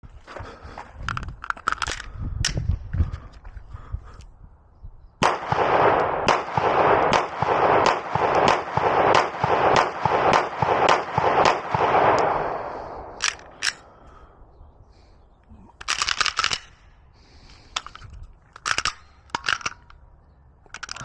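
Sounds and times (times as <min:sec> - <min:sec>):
rapid pistol shots: 0:05.2 - 0:13.8
sharp clicks: 0:13.0 - 0:14.2.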